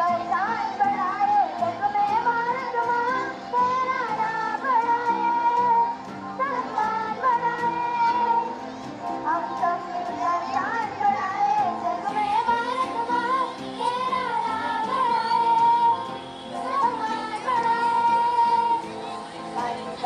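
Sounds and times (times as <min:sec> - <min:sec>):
high voice singing: 0:09.3 - 0:20.0.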